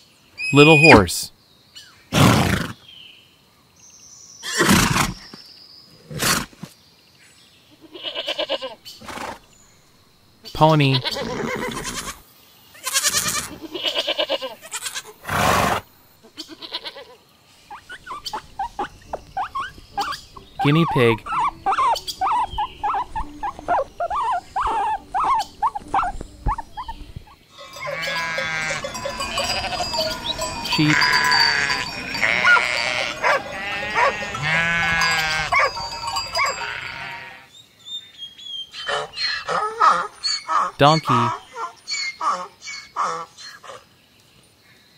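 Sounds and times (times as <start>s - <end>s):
pony whinnying: 11.0s - 12.2s, 12.8s - 15.8s, 17.8s - 37.5s, 38.8s - 43.8s
sheep bleating: 12.8s - 15.2s, 16.4s - 17.1s, 27.6s - 37.5s
pony snorting: 15.2s - 15.8s, 27.6s - 37.1s.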